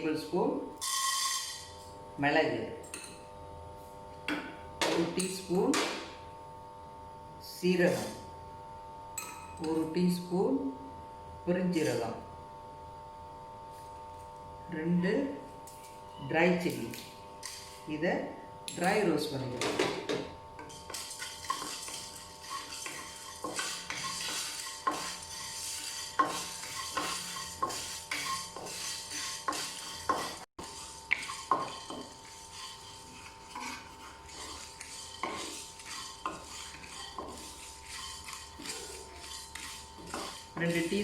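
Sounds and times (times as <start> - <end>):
spatula scraping a pan: 0.8 - 1.8, 17.4 - 17.9, 19.6 - 41.0.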